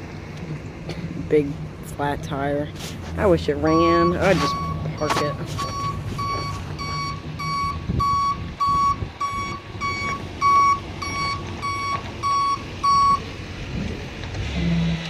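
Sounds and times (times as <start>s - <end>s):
truck engine running: 0.0s - 15.0s
truck reverse alarm beeping: 3.6s - 13.3s.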